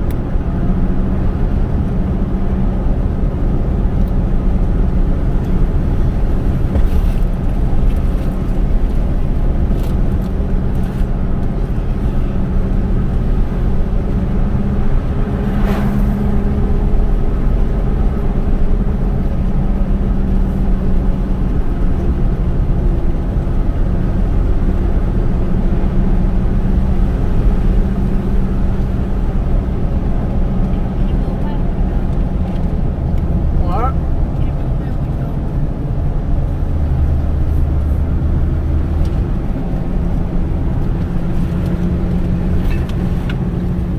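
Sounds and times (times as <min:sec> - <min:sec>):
car engine and tyre rumble: 0:00.0 - 0:43.9
brief swish: 0:15.3 - 0:16.5.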